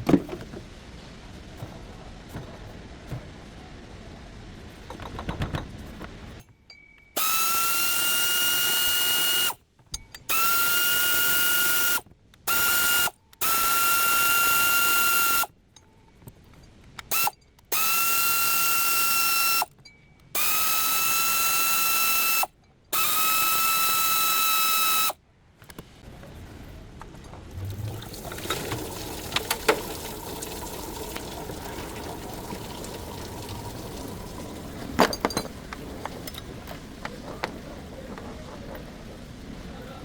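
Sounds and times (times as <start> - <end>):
power tool whining: 7.2 - 9.6, 10.3 - 15.5, 17.1 - 19.7, 20.4 - 25.2.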